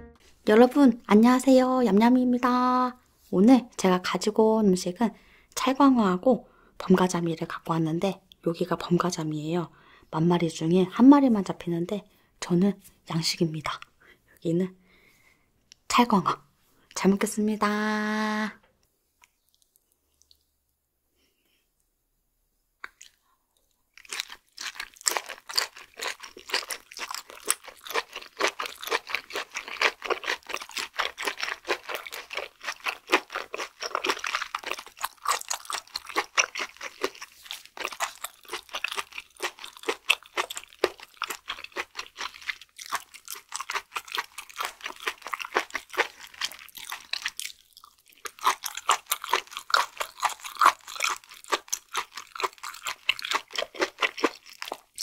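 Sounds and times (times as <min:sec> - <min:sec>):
wet crunchy chewing: 0:22.8 - 0:55.0.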